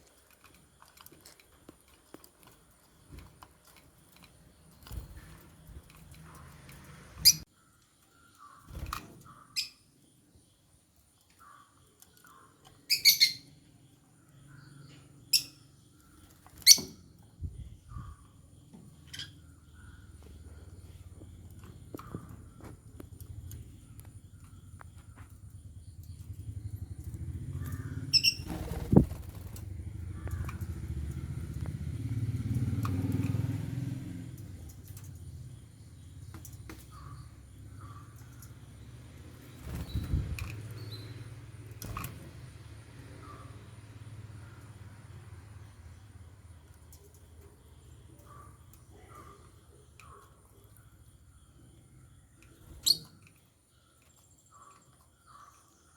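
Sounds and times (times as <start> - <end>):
lovebirds chirping: 2.7 - 33.6, 34.5 - 42.0, 45.8 - 55.9
vehicle engine passing by: 4.8 - 7.5, 25.4 - 46.8.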